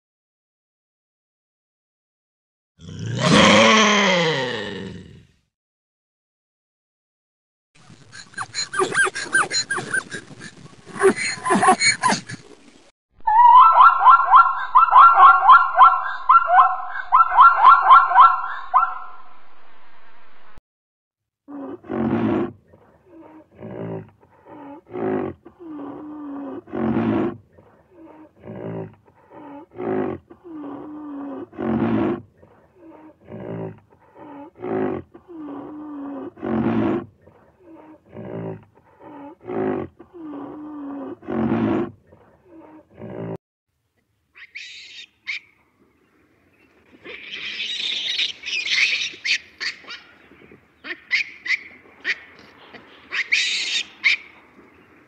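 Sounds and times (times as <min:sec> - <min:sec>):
animal harsh calls: 0:13.3 - 0:19.1, 0:44.4 - 0:45.5, 0:47.0 - 0:50.1, 0:53.1 - 0:54.3
animal chirping calls: 0:13.3 - 0:19.2, 0:44.4 - 0:45.5, 0:47.0 - 0:50.1, 0:50.8 - 0:52.3, 0:53.1 - 0:54.4.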